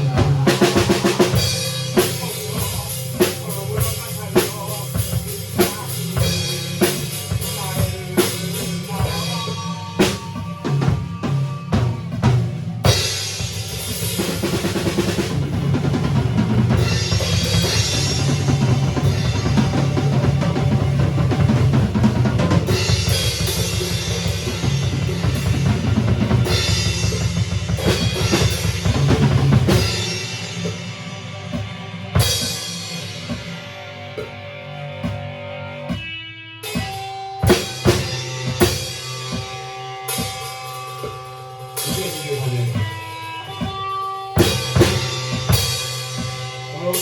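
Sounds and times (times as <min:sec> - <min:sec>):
band playing live: 0:00.0 - 0:47.0
drum kit playing: 0:00.0 - 0:47.0.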